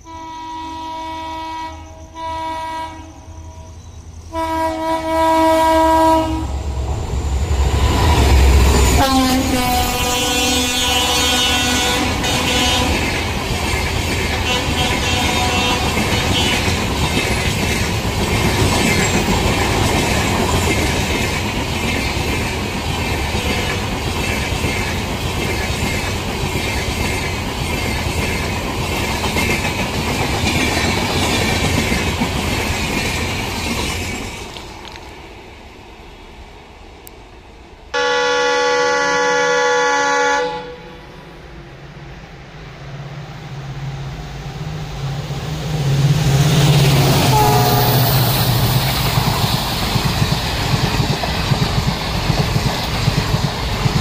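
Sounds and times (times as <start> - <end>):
train horn: 0.0 - 6.6, 8.8 - 13.1, 14.3 - 16.8, 23.3 - 23.9, 37.9 - 41.2, 46.9 - 48.4
train wheels clacking on rails: 7.6 - 35.2, 45.6 - 54.0.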